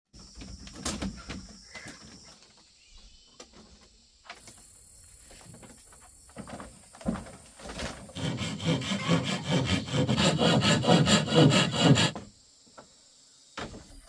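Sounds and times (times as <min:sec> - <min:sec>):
rustles: 0:00.2 - 0:08.2
faint insect drone: 0:00.2 - 0:14.0.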